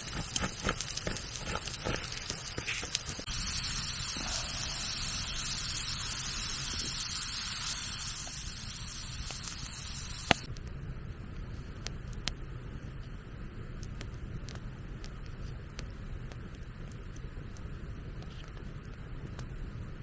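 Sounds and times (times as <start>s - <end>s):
steady hiss: 0.0s - 10.5s
campfire crackling and popping: 0.0s - 20.0s.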